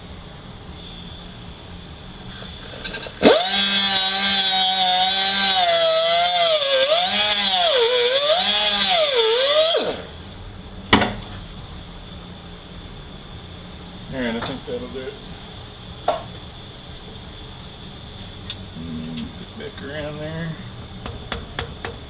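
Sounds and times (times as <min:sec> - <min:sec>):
power tool grinding whine: 0:02.8 - 0:10.1.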